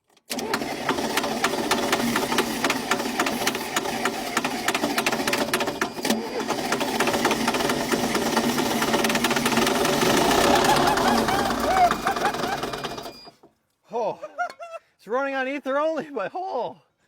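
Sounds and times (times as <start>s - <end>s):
diesel engine clattering roughly: 0.4s - 13.3s.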